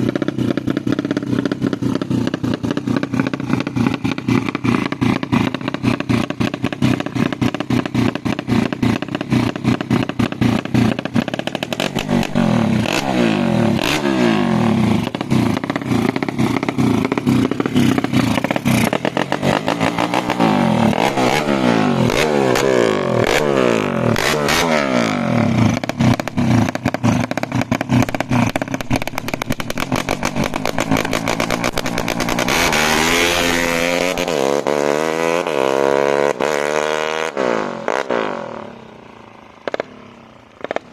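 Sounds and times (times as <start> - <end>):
motorcycle engine revving: 0.0 - 40.9
rapid crackling rattle: 15.0 - 21.0, 25.7 - 34.3.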